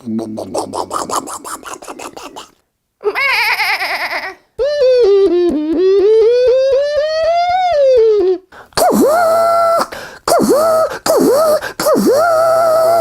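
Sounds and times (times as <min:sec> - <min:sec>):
fast-warbling vocal tone: 0:00.0 - 0:02.6
mouth clicks: 0:00.0 - 0:02.6, 0:08.7 - 0:13.0
long high vocal call: 0:00.0 - 0:13.0.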